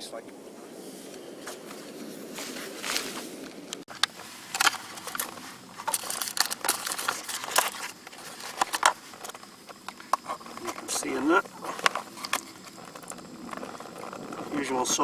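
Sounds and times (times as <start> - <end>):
foil pouch crinkling: 4.0 - 14.5.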